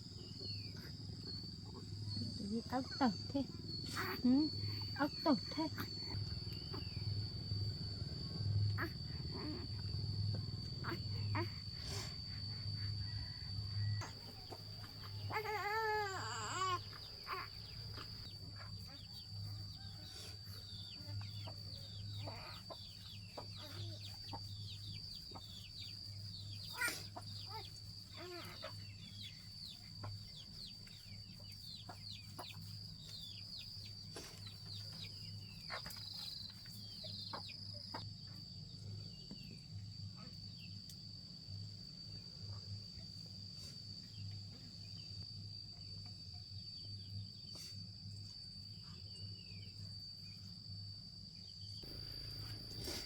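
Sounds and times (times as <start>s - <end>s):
high insect drone: 0.0s - 53.0s
low hum: 1.2s - 15.3s
chickens peeping and clucking: 20.8s - 27.8s.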